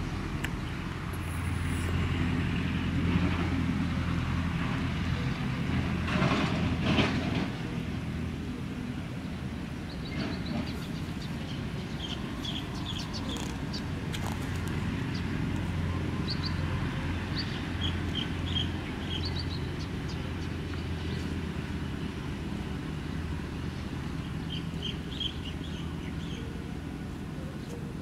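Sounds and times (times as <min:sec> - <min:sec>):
low outdoor rumble: 0:00.0 - 0:28.0
birds chirping: 0:09.3 - 0:28.0.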